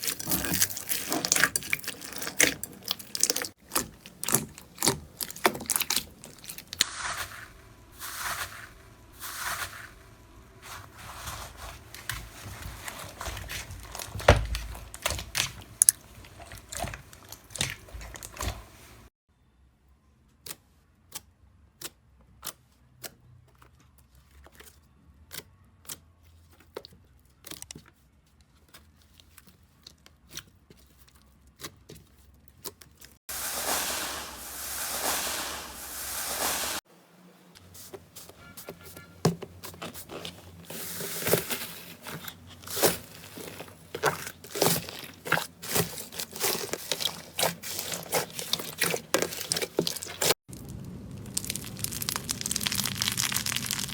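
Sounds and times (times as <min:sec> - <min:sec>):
slime crackling and popping: 0:00.0 - 0:07.5, 0:12.8 - 0:18.9, 0:42.7 - 0:53.9.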